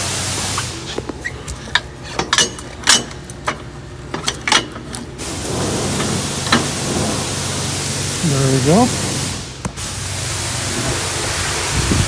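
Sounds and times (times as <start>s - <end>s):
sharp metal clanks and knocks: 1.7s - 4.8s.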